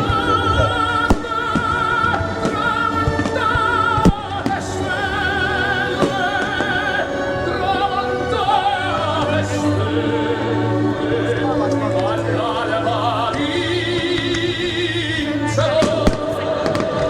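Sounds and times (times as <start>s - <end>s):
instrumental accompaniment: 0.0s - 17.0s
operatic singing: 0.0s - 17.0s.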